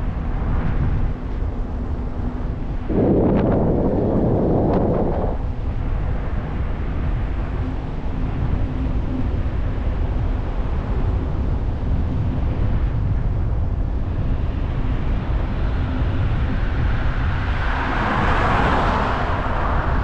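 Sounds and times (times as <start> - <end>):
wind buffeting microphone: 0.0 - 20.0
loud rushing noise: 2.8 - 5.6, 16.6 - 20.0.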